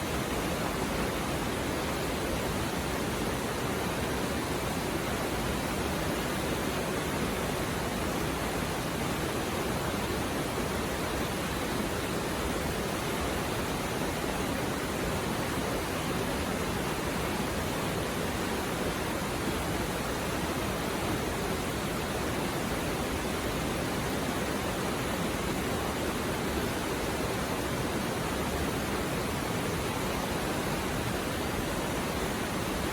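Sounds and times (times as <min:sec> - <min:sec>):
river flowing over rocks: 0:00.0 - 0:32.9.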